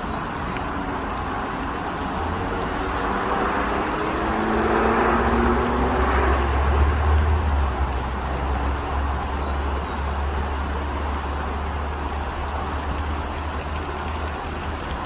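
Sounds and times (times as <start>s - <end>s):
vehicle passing by: 2.3s - 9.4s.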